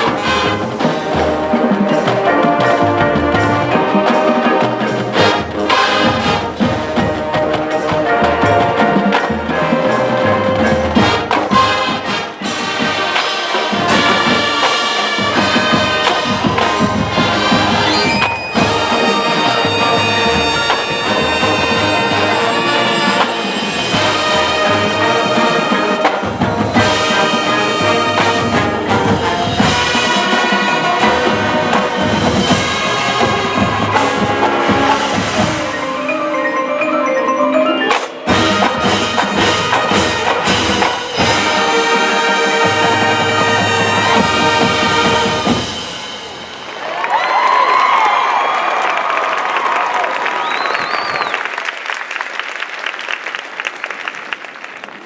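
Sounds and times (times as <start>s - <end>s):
drums: 0.0s - 36.6s, 37.7s - 51.6s
marching band brass: 0.0s - 55.0s
marimba and glockenspiel: 35.1s - 39.7s.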